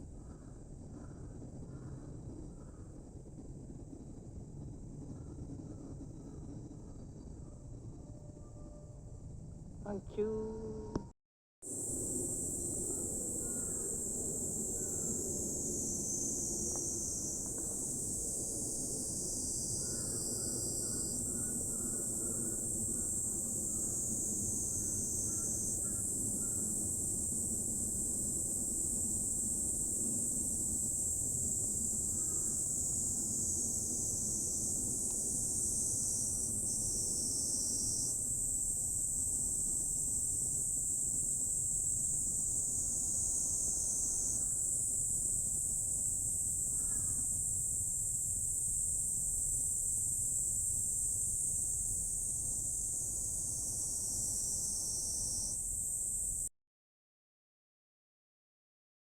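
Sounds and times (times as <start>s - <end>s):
insect chorus shrilling: 11.7s - 48.7s, 52.6s - 56.2s.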